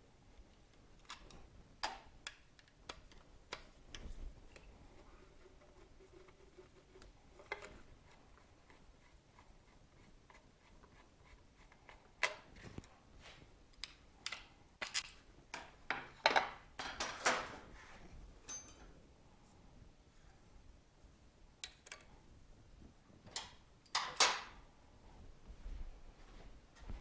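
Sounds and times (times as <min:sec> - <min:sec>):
metal tools clinking and knocking: 0:18.4 - 0:19.0.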